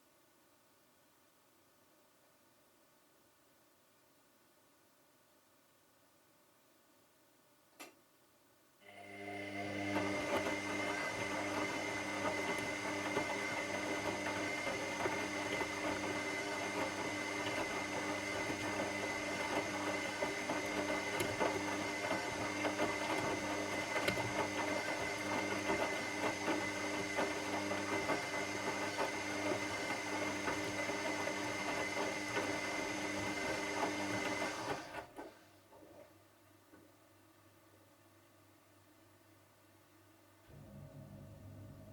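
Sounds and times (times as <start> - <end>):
washing machine running: 8.9 - 35.4, 40.5 - 41.9.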